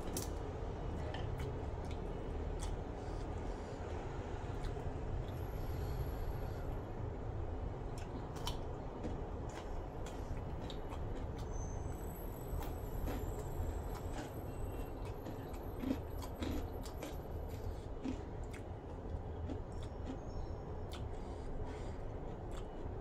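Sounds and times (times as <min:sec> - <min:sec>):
steady low hum: 0:00.0 - 0:23.0
chewing crispy chicken skin: 0:07.8 - 0:11.6, 0:12.5 - 0:23.0.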